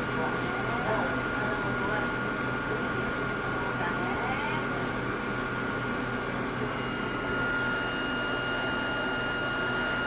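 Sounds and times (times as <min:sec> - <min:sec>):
electrical hum: 0:00.0 - 0:10.0
high even whine: 0:05.9 - 0:10.0.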